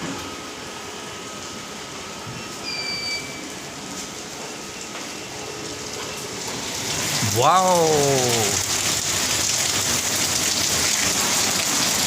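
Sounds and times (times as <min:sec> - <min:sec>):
faint high whistle: 0:02.6 - 0:03.5
heavy rain hissing: 0:06.9 - 0:12.0.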